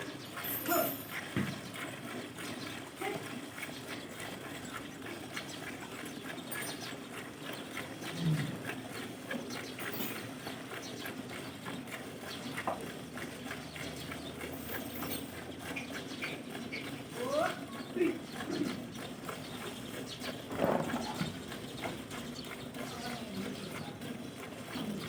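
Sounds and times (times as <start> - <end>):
milk squirting into a pail: 20.4 - 22.8.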